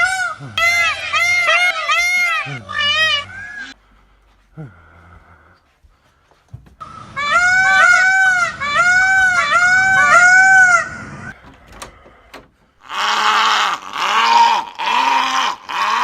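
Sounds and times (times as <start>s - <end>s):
high-pitched animal calls: 0.0s - 3.8s, 6.8s - 11.4s
hoarse bleating cries: 0.0s - 3.8s, 6.8s - 11.4s
clicks: 11.0s - 12.8s.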